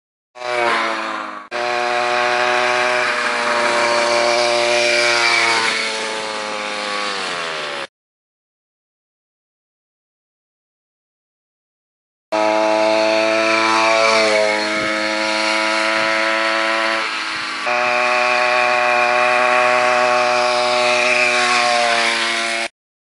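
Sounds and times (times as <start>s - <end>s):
small gas engine running at high revs: 0.4s - 7.9s, 12.3s - 22.7s.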